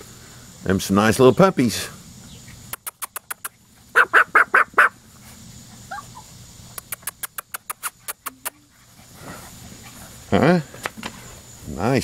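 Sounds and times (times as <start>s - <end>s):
sharp clicks: 2.7s - 3.6s, 6.7s - 8.6s
animal calling loudly: 3.4s - 5.0s.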